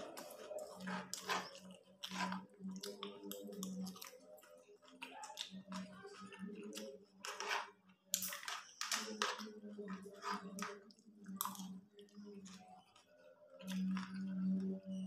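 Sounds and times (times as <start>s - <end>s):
person chewing and crunching: 0.0s - 8.4s, 11.2s - 13.0s.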